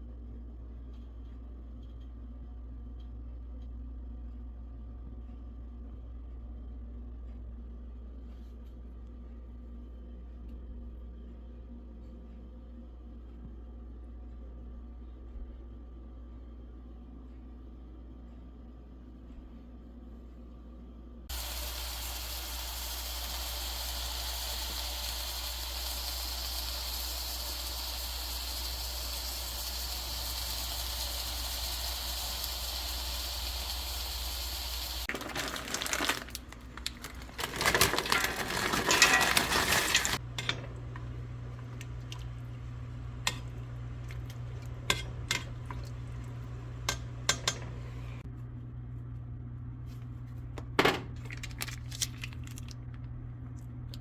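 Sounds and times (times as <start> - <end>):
low steady hum: 0.0 - 54.0
steady hiss: 21.3 - 35.1
clattering: 35.4 - 41.0.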